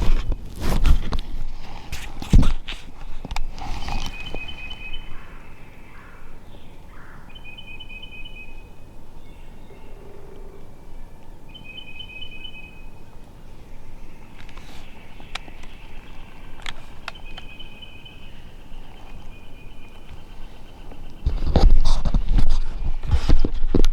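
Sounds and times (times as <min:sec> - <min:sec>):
songbird trilling: 0:03.8 - 0:21.3.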